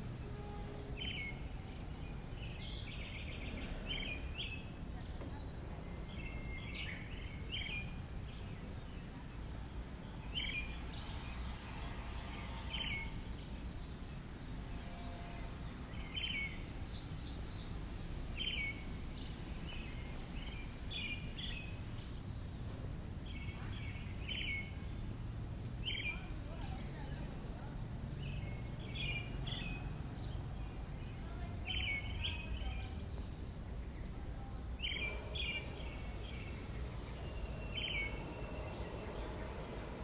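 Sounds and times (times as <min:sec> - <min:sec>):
bird chirping: 0:00.0 - 0:09.4, 0:10.0 - 0:40.0
low background rumble: 0:17.0 - 0:40.0.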